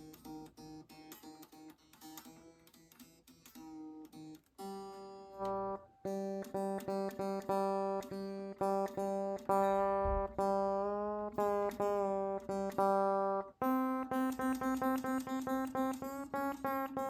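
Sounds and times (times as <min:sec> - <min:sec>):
baritone guitar string plucked: 0:00.0 - 0:17.0
higher guitar note: 0:05.4 - 0:08.8, 0:09.5 - 0:13.3.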